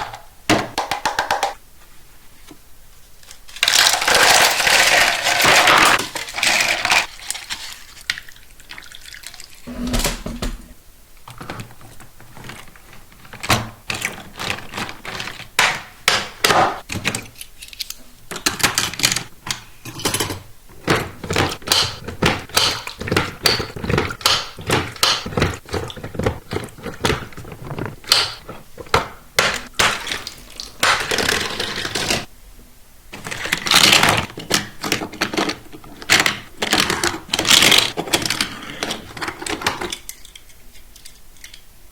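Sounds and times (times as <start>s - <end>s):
packaging rustling scrapes: 11.8s - 15.5s, 25.5s - 28.9s, 30.0s - 32.3s.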